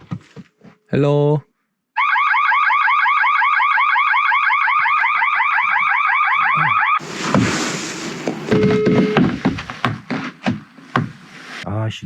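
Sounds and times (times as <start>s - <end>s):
security alarm whooping: 2.0s - 7.0s.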